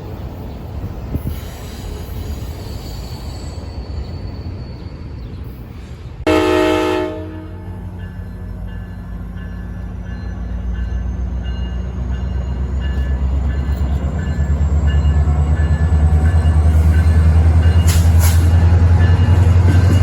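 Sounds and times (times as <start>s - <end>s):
locomotive engine humming: 6.2s - 20.0s.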